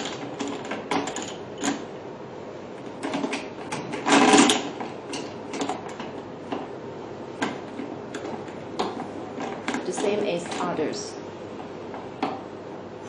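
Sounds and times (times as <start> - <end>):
rattling clatter: 3.0 - 6.6.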